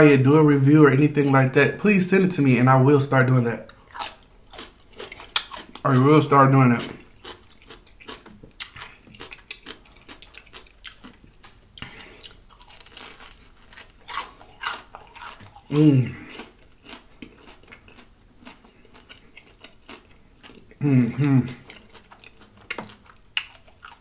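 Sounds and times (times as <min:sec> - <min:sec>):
chewing crunchy fried food: 0:03.7 - 0:24.0
person making voiced sound: 0:15.7 - 0:16.2, 0:20.8 - 0:21.6.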